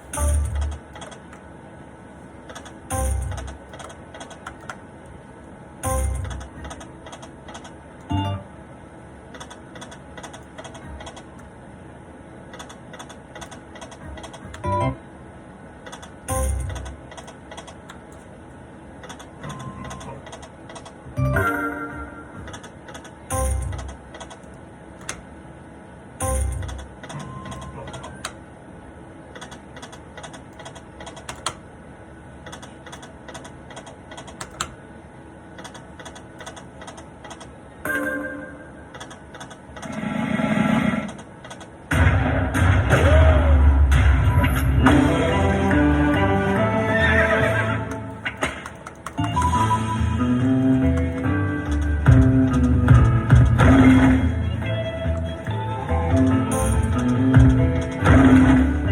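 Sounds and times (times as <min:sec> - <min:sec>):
slot machine music: 0:00.0 - 0:00.9, 0:02.9 - 0:03.6, 0:05.8 - 0:06.8, 0:08.1 - 0:08.6, 0:13.9 - 0:15.1, 0:16.3 - 0:17.1, 0:21.1 - 0:24.1, 0:26.2 - 0:28.3, 0:37.8 - 0:39.0, 0:44.2 - 0:48.4, 0:49.0 - 0:58.9
slot machine clicks: 0:00.0 - 0:01.4, 0:02.5 - 0:04.8, 0:05.8 - 0:08.5, 0:09.3 - 0:11.5, 0:12.5 - 0:15.0, 0:15.8 - 0:18.3, 0:19.0 - 0:25.3, 0:26.2 - 0:28.4, 0:29.3 - 0:31.6, 0:32.4 - 0:34.8, 0:35.6 - 0:40.1, 0:47.0 - 0:58.9
background hum: 0:00.0 - 0:58.9.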